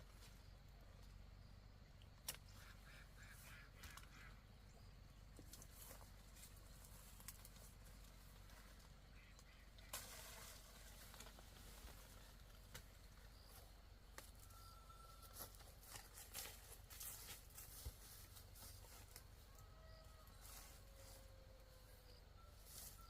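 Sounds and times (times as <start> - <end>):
faint whistled tones: 14.3 - 15.7, 19.6 - 23.0.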